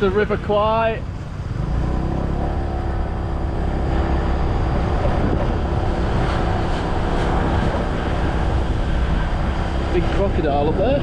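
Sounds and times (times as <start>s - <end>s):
road and wind rumble: 0.0s - 11.0s
scooter engine running: 0.2s - 11.0s.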